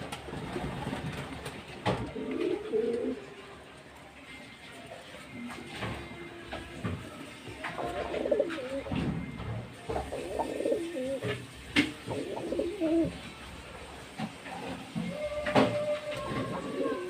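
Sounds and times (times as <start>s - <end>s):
pigeons cooing: 1.7s - 3.5s, 7.6s - 8.9s, 10.0s - 13.4s, 14.6s - 17.0s.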